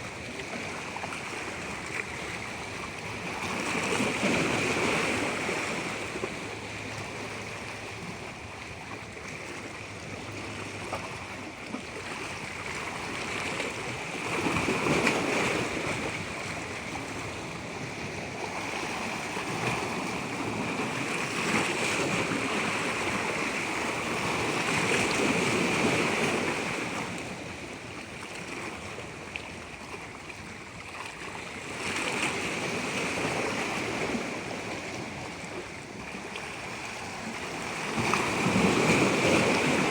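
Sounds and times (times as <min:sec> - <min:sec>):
water rushing: 0:33.7 - 0:39.9.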